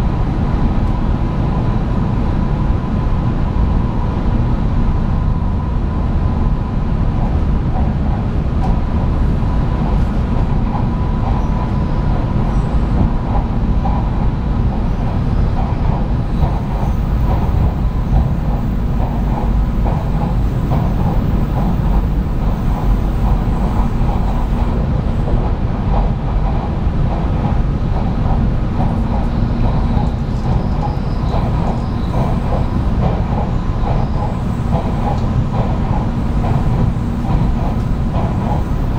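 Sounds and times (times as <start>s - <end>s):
train rumble and hum: 0.0s - 38.9s
wheels clicking on track: 12.6s - 38.9s.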